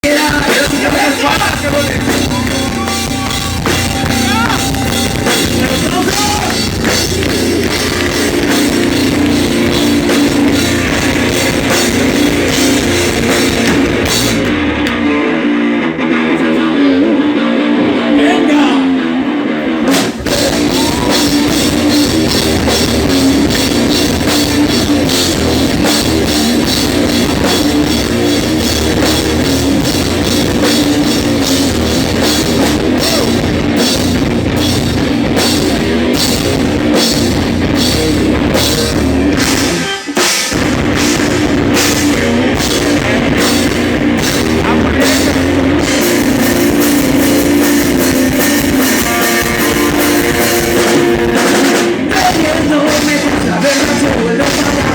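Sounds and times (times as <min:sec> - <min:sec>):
bass guitar: 0:00.0 - 0:54.9
distorted electric guitars: 0:00.0 - 0:54.9
drum kit beat: 0:00.0 - 0:54.9.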